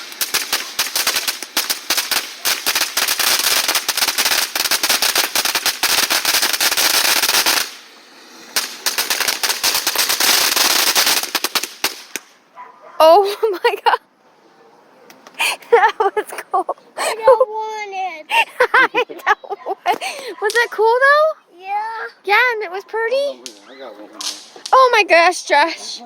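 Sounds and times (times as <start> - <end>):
firework crackling pops: 0.0 - 12.5, 19.9 - 21.3, 23.1 - 25.8.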